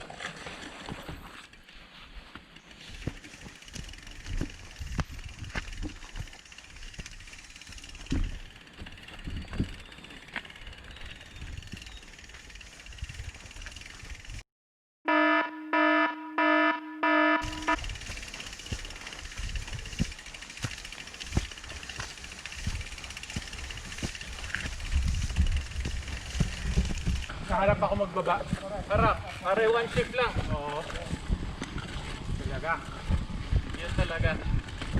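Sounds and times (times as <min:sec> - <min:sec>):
mountain bike rattling on trail: 0:00.0 - 0:14.4, 0:17.4 - 0:34.9
loud electronic beeps: 0:15.1 - 0:17.8
wind on microphone: 0:22.6 - 0:34.9.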